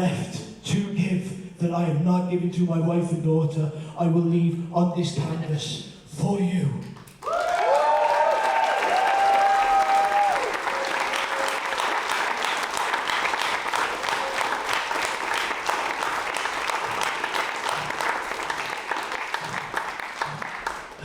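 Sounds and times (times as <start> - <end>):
audience clapping: 7.0 - 21.0
people whooping: 7.2 - 12.4.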